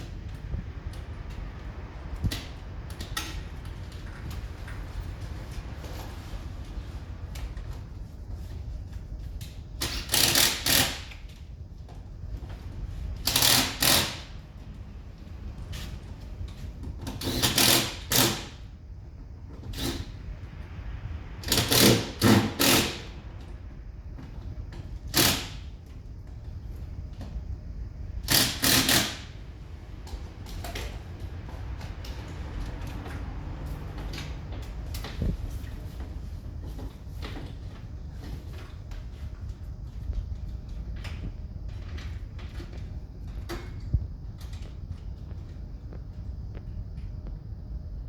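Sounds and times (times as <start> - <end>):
impact driver driving screws: 9.8 - 11.1, 13.2 - 14.2, 28.3 - 29.2.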